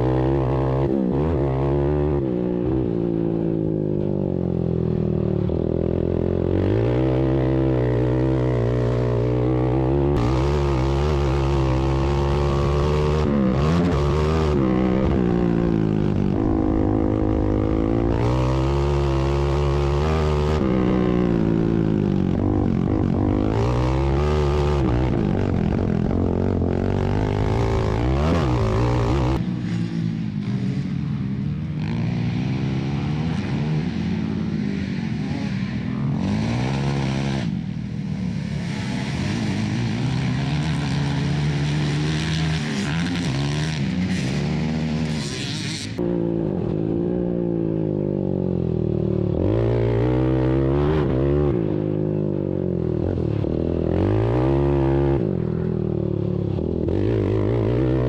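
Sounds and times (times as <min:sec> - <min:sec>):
atv engines revving: 0:00.0 - 0:58.0.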